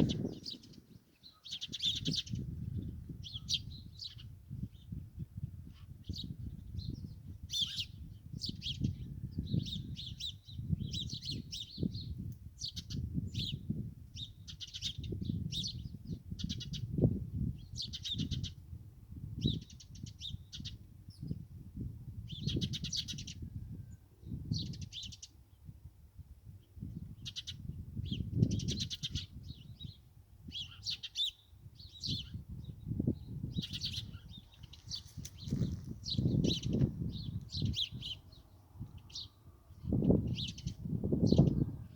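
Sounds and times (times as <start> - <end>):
songbirds chirping: 0.0 - 5.1, 26.5 - 41.9.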